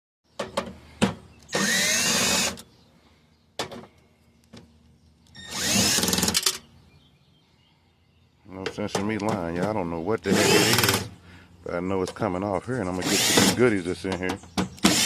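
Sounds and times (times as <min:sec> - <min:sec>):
power drill running: 0:01.5 - 0:02.6, 0:05.4 - 0:06.5, 0:10.3 - 0:11.0, 0:13.0 - 0:13.6.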